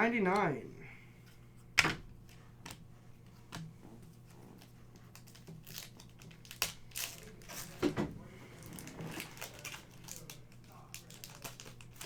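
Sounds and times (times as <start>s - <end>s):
foil wrapper crinkling: 4.5s - 12.0s.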